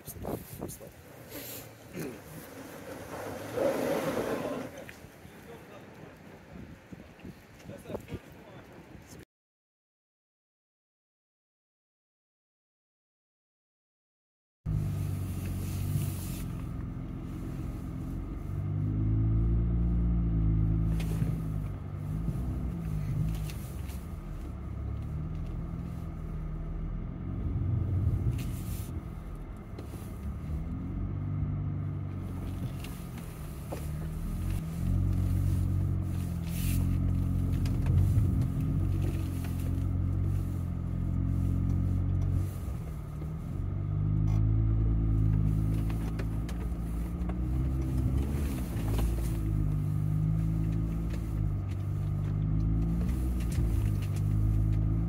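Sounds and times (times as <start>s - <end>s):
off-road engine revving: 0.0s - 5.9s, 14.7s - 55.0s.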